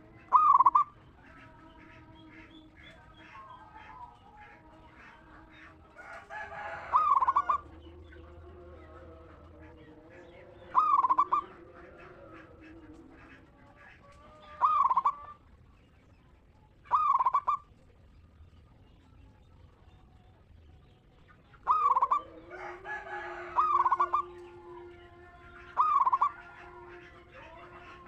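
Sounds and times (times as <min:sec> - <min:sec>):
dove cooing: 0:00.0 - 0:15.5, 0:16.8 - 0:17.8, 0:21.5 - 0:28.0
low drawn-out bird call: 0:10.7 - 0:12.8.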